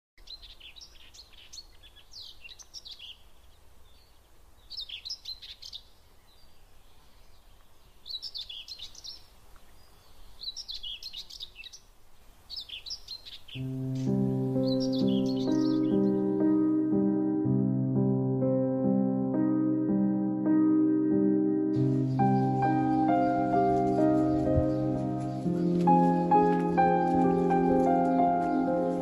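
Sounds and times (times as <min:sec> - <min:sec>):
songbird singing: 0:00.2 - 0:29.0
soft music: 0:13.6 - 0:29.0.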